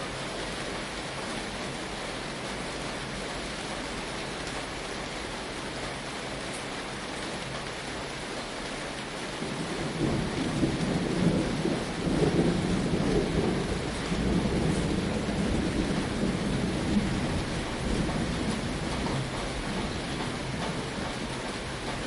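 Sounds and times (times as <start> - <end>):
rain on a tin roof: 0.0 - 22.0
thunder rumbling: 9.3 - 22.0.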